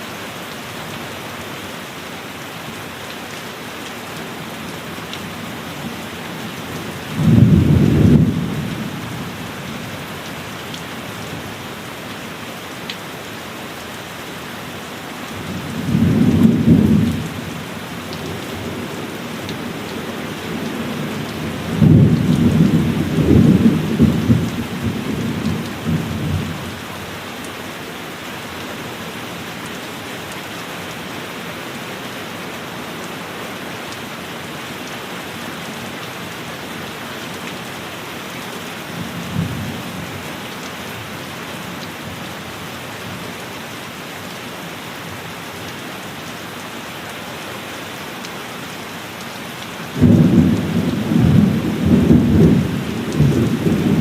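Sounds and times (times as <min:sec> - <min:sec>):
heavy rain falling: 0:00.0 - 0:54.0
thunder rumbling: 0:07.2 - 0:09.3, 0:50.0 - 0:54.0.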